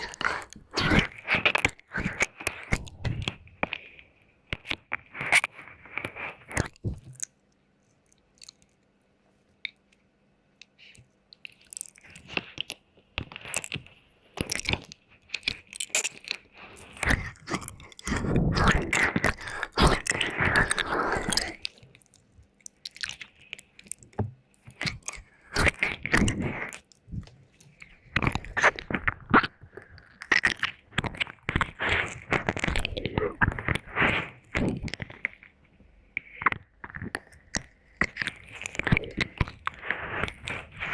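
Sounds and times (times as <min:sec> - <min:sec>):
wet mouth clicks and smacks: 0:06.5 - 0:08.9, 0:14.4 - 0:35.4.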